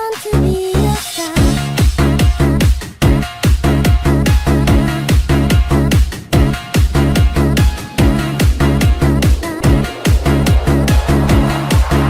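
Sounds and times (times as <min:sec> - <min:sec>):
electronic dance music: 0:04.7 - 0:12.0.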